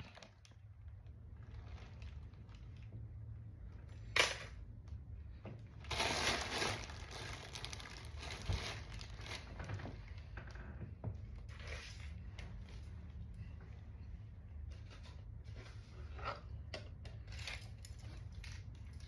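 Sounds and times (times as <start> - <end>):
rustling and crinkling: 0.0 - 3.4, 5.3 - 14.0.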